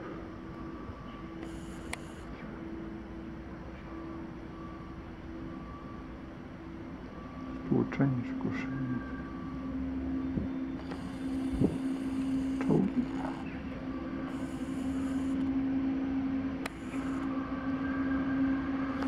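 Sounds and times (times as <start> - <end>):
electric locomotive hum: 0.0 - 19.0
short clicks: 1.8 - 2.2.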